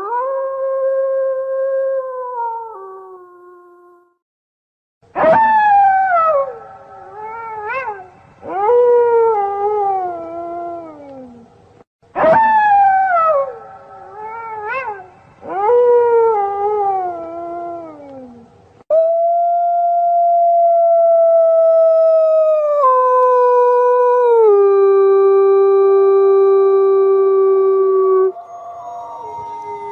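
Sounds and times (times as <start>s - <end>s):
wolves howling: 27.2s - 29.9s.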